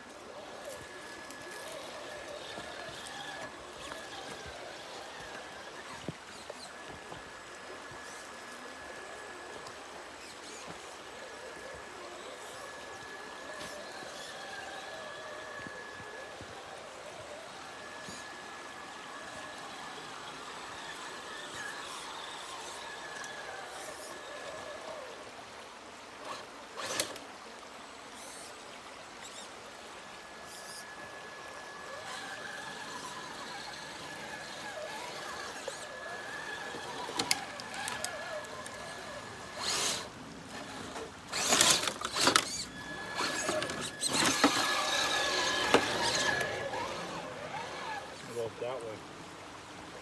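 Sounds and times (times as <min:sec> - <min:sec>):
electric motor gear whine: 0:00.0 - 0:50.0
knocks and scrapes: 0:32.0 - 0:48.2.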